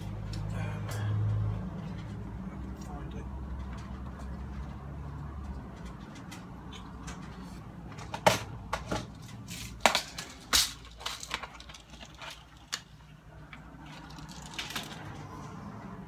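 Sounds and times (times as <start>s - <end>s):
plastic parts clicking and knocking: 5.8s - 15.3s.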